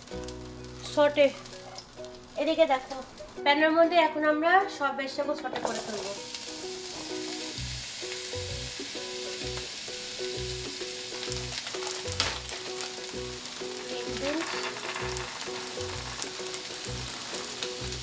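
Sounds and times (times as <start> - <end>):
vegetables sizzling in a frying pan: 0.0 - 4.0, 5.4 - 18.0.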